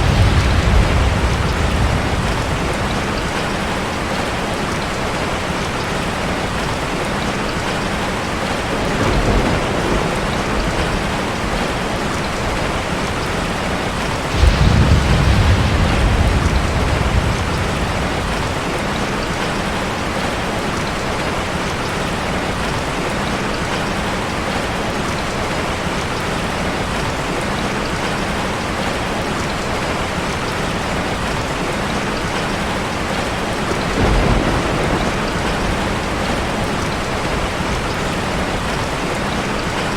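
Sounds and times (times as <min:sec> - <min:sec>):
low rumbles: 0:00.0 - 0:04.3, 0:14.0 - 0:19.6
waterfall rushing: 0:00.0 - 0:11.4.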